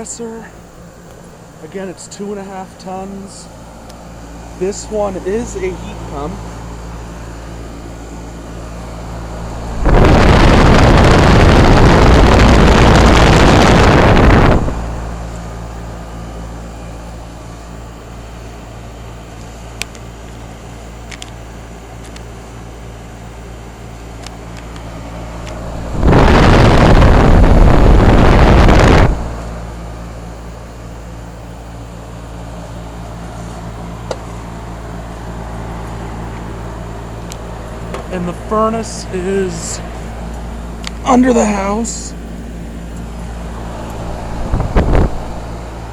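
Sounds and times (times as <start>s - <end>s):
condenser fan airflow: 0.0s - 45.9s
heat pump unit humming: 0.0s - 45.9s
wind buffeting microphone: 9.4s - 14.9s, 25.7s - 29.3s, 43.5s - 45.6s.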